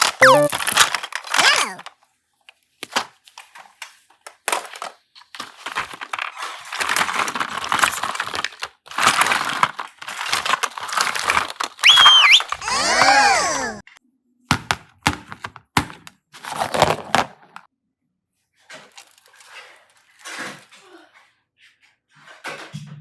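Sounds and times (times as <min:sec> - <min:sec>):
whistle-like tone: 0:00.2 - 0:00.6, 0:11.8 - 0:13.5.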